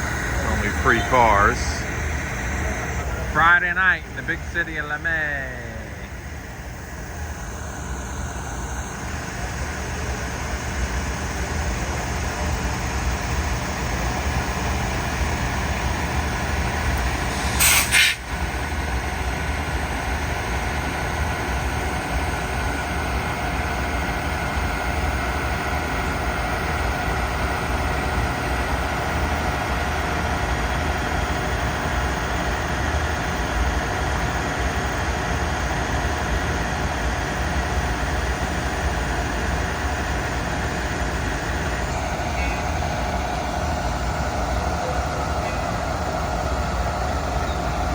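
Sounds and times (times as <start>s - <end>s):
diesel train running: 0.0s - 47.9s
loud hiss: 16.6s - 18.7s.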